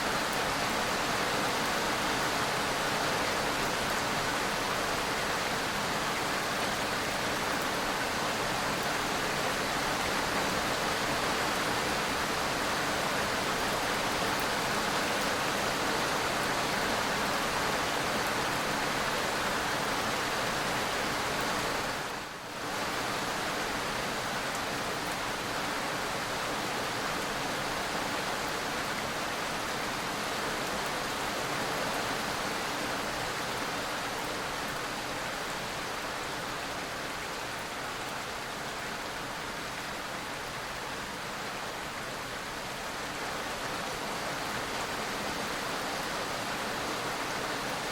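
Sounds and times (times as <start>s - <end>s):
rain-like hiss: 0.0s - 47.9s.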